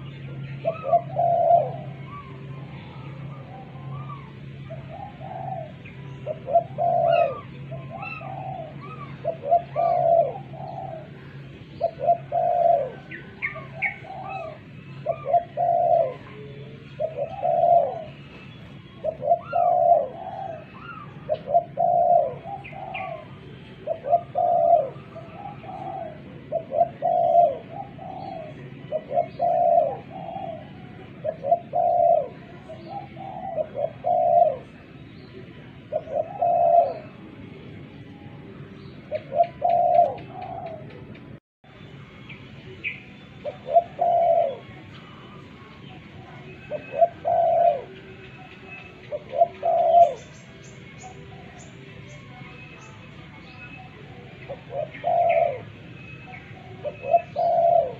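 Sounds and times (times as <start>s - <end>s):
dove cooing: 0.0s - 35.0s, 35.6s - 37.6s, 39.1s - 41.2s, 43.4s - 52.6s, 53.7s - 57.9s
small birds chirping: 38.7s - 57.9s.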